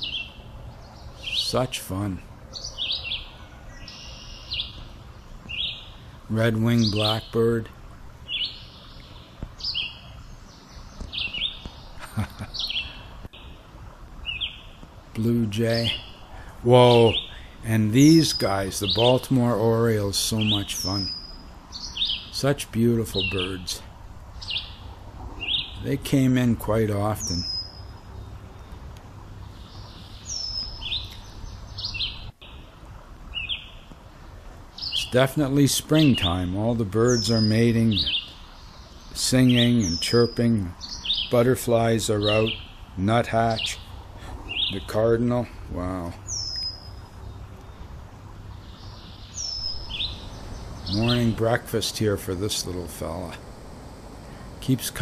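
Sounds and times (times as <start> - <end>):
red-winged blackbird singing: 0.0 - 7.7, 8.3 - 13.6, 14.2 - 28.8, 29.4 - 32.7, 33.3 - 34.0, 34.7 - 55.0
songbirds chirping: 0.0 - 55.0
low steady rumble: 40.4 - 55.0.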